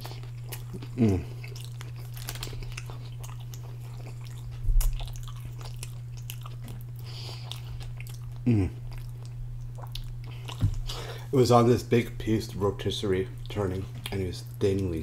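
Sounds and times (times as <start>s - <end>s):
person chewing food: 0.0s - 11.3s, 13.3s - 14.6s
short low vocal sound: 8.4s - 8.8s.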